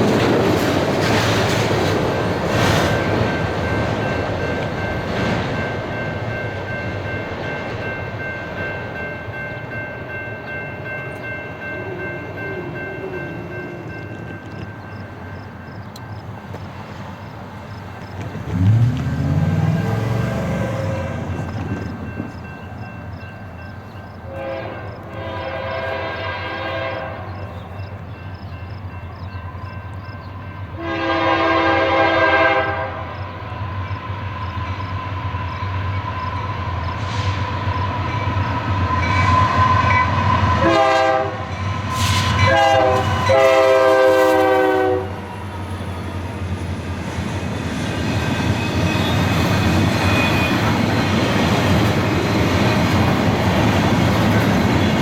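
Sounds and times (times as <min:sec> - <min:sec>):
diesel locomotive engine rumble: 0:00.0 - 0:55.0
locomotive air horn blasts: 0:19.7 - 0:21.5, 0:24.3 - 0:27.4, 0:30.8 - 0:33.2, 0:39.0 - 0:45.4.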